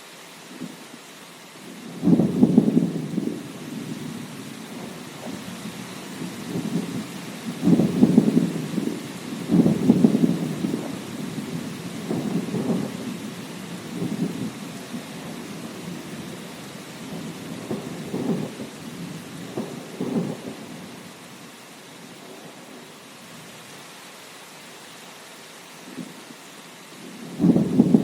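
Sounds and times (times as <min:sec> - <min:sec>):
steady rain: 0:00.0 - 0:28.0
thunder rumbling: 0:01.7 - 0:21.2, 0:27.0 - 0:28.0.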